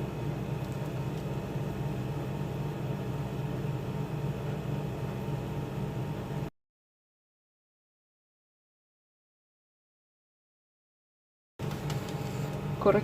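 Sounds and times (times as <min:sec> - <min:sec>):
low machine hum with hiss: 0:00.0 - 0:06.5, 0:11.6 - 0:13.0.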